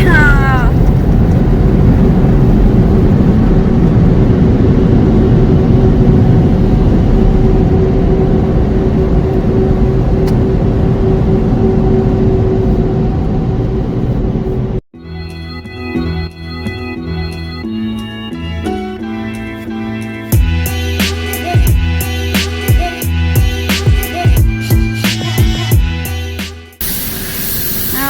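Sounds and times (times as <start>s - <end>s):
car wash machinery rumbling: 0.0s - 14.8s, 26.8s - 28.0s
steady hum: 26.8s - 28.0s.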